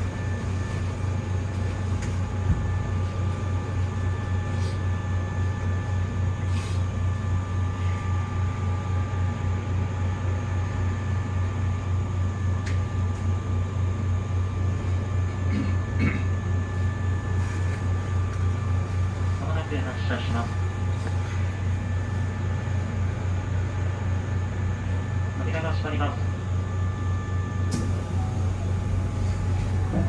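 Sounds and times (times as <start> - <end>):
electric train humming: 0.0 - 4.4, 27.3 - 30.0.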